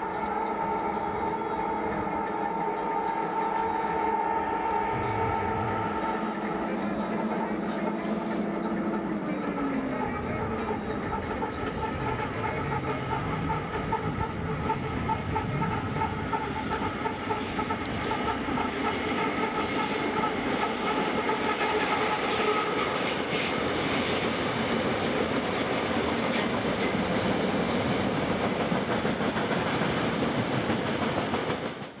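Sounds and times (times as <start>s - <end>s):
faint steady tones: 0.0s - 21.5s
train wheels rumbling on track: 0.0s - 32.0s.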